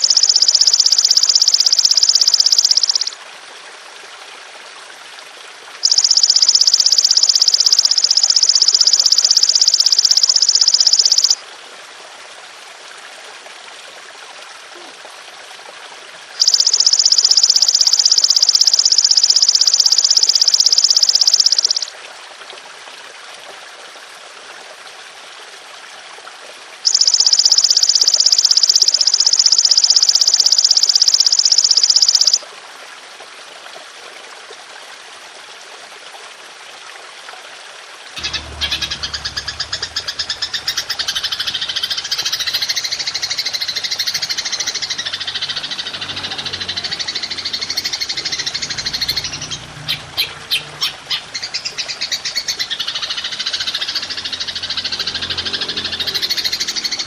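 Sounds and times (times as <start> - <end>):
rapidly pulsing rattling insect call: 0.0 - 3.2, 5.8 - 11.4, 16.4 - 21.9, 26.8 - 32.4, 38.2 - 57.0
water trickling: 0.0 - 57.0.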